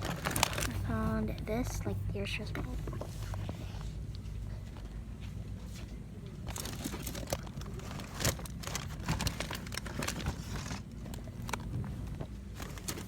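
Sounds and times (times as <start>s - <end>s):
plastic packaging crinkling and clicking: 0.0s - 0.9s, 6.3s - 13.0s
low steady store hum: 0.0s - 13.0s.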